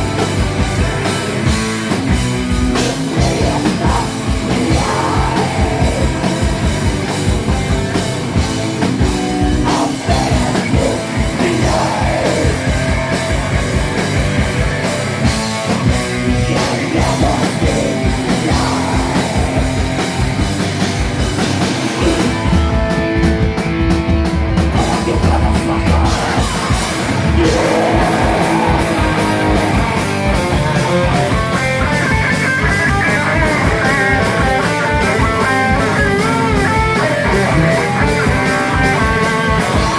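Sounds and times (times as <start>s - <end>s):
live rock band playing: 0.0s - 39.9s
person singing: 2.8s - 6.7s, 9.6s - 13.2s, 16.3s - 20.1s, 22.0s - 22.7s, 24.7s - 30.1s.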